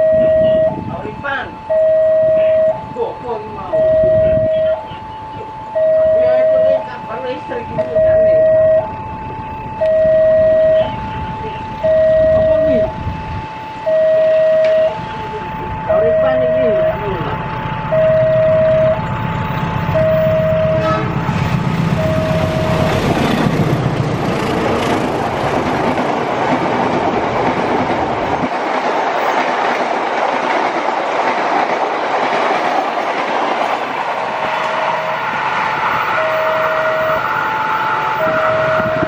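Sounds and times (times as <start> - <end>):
two-tone crossing warning bell: 0.0 - 28.6, 32.6 - 39.0
locomotive engine rumble: 0.0 - 39.0
train wheels clattering on rails: 20.8 - 36.0.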